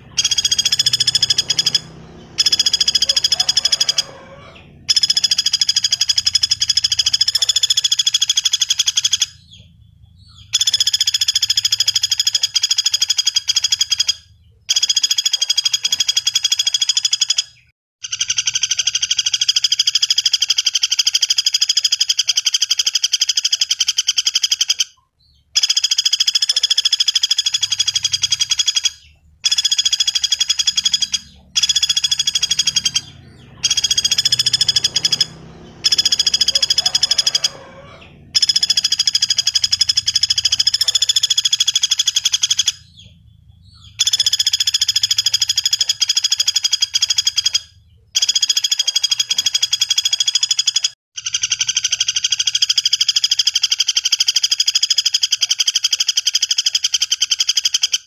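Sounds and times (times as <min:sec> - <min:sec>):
woodpecker rattling trill: 0:00.0 - 0:58.0.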